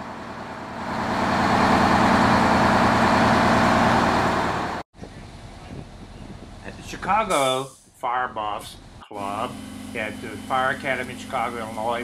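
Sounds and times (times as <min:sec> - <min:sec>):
diesel fire engine revving: 0:00.0 - 0:04.8, 0:09.1 - 0:12.0.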